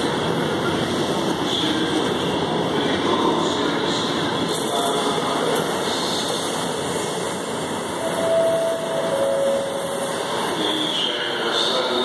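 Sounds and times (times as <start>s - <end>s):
freight train rumble: 0.0s - 12.0s.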